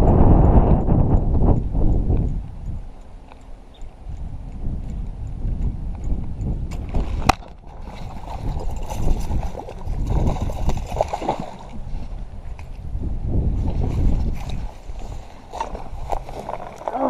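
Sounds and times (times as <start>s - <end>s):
water sloshing and gurgling: 6.7s - 17.0s.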